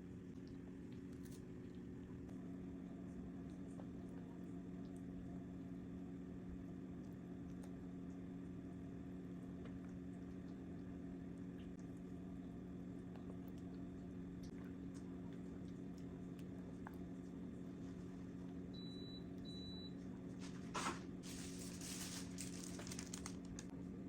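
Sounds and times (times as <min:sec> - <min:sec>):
steady low hum: 0:00.0 - 0:24.0
rustling noise: 0:20.4 - 0:23.7.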